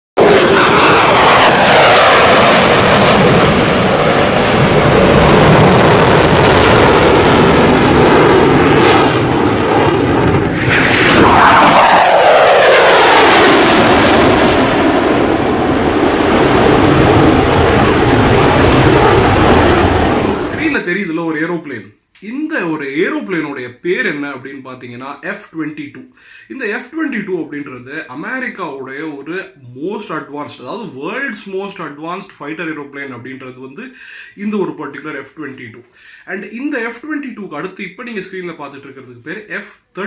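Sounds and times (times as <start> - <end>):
fighter jet flyby: 0.2 - 20.7.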